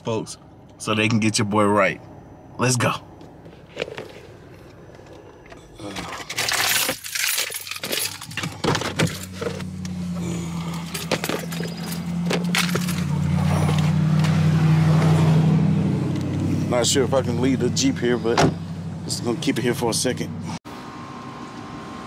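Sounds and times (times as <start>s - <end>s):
car engine starting and idling: 0.0s - 22.0s
keys jangling: 6.1s - 9.5s, 10.8s - 13.8s.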